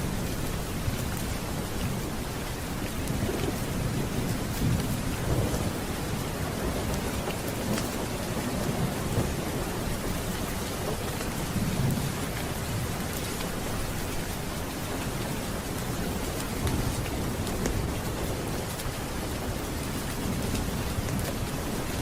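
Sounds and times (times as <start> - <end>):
low rolling thunder: 0.0 - 13.1
heavy rain: 0.0 - 22.0.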